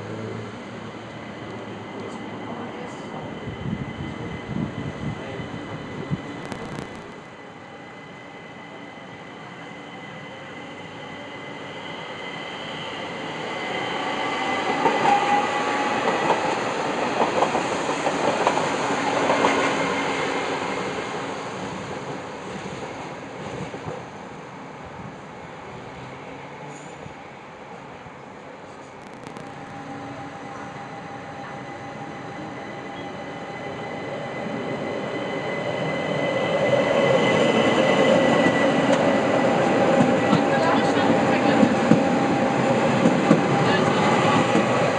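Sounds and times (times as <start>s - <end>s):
sharp click: 6.4s - 7.3s, 29.0s - 29.9s
thin high whine: 6.4s - 7.5s, 29.0s - 30.8s.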